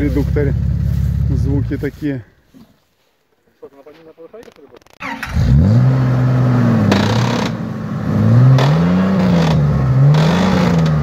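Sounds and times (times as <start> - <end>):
engine revving hard: 5.0 - 11.0.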